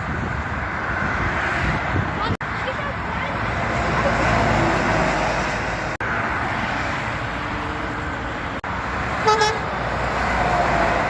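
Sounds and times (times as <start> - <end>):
road traffic noise: 0.0 - 11.0
loud horn-like tone: 9.2 - 9.7.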